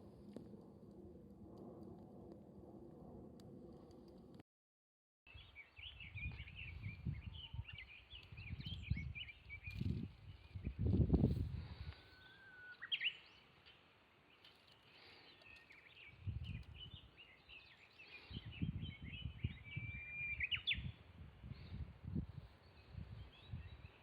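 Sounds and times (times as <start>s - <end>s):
birds singing and chirping: 5.3s - 10.9s, 12.0s - 13.8s, 14.4s - 21.0s.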